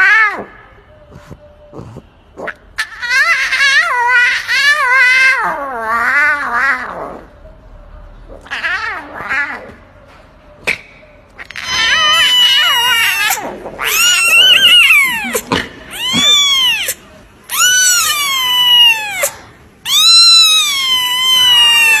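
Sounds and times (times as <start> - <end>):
cat meowing: 11.4 - 22.0.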